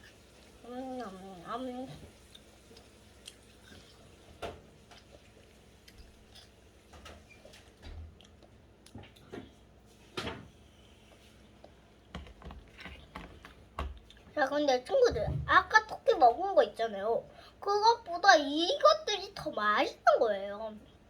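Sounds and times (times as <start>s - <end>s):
clicks and taps of eating: 6.9s - 9.5s, 11.6s - 14.2s.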